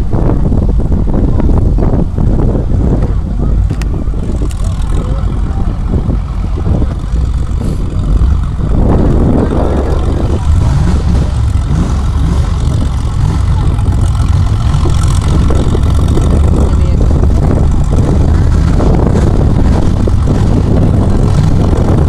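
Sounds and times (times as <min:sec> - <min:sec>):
off-road engine revving loudly: 0:03.4 - 0:22.0.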